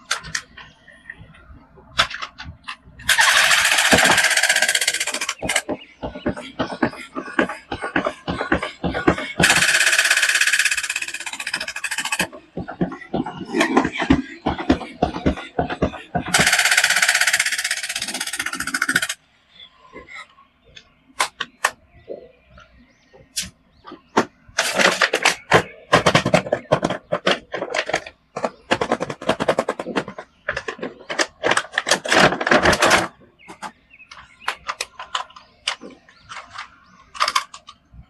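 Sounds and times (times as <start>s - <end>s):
plastic packaging clicking and crackling: 24.6s - 37.9s.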